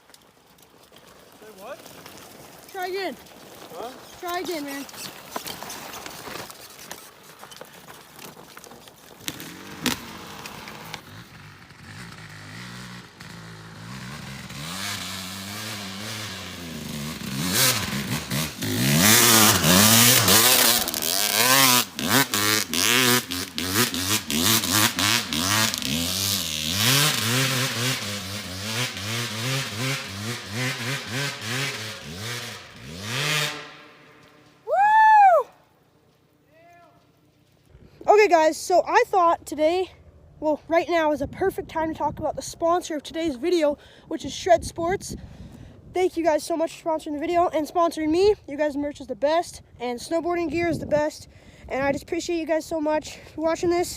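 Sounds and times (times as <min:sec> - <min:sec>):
dirt bike engine revving: 0:09.2 - 0:34.5.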